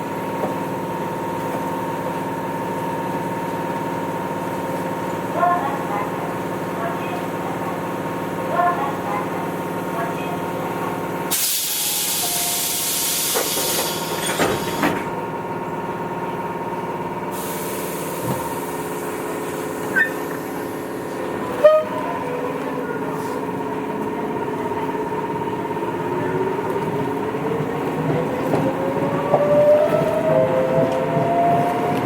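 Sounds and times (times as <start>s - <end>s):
air hiss: 11.3s - 14.2s
electric train motor hum: 13.4s - 32.0s.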